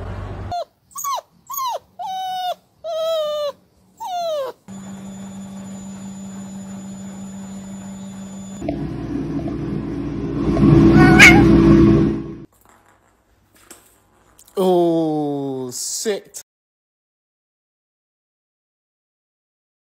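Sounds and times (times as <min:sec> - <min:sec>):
puppy whining: 0:00.5 - 0:04.7, 0:10.9 - 0:11.6
washing machine hum: 0:04.7 - 0:12.5.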